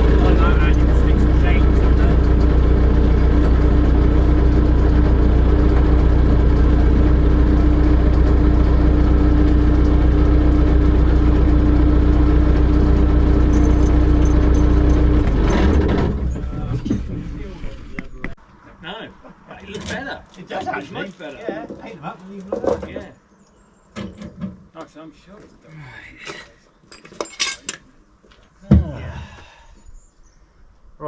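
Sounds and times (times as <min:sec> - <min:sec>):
engine humming and whining: 0:00.0 - 0:18.4.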